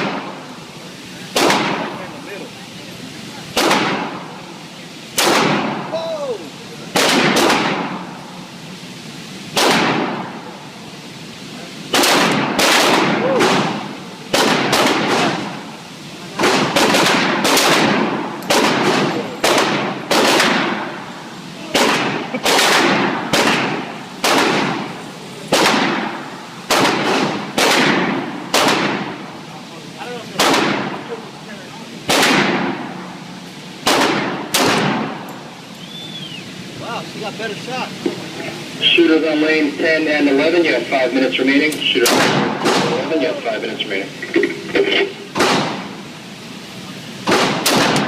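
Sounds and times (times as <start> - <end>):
pistol shots echoing indoors: 5.2 - 5.7, 7.0 - 7.9, 9.6 - 10.1, 11.9 - 13.7, 14.3 - 15.4, 16.4 - 20.8, 21.8 - 24.8, 26.7 - 29.0, 32.1 - 32.7, 33.8 - 35.0, 42.0 - 43.0, 47.3 - 48.0.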